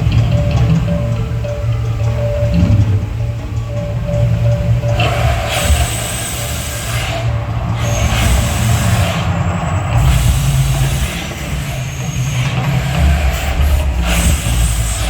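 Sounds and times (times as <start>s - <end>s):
deep steady rumble: 0.0s - 15.0s
loud hissing rushes: 4.9s - 15.0s.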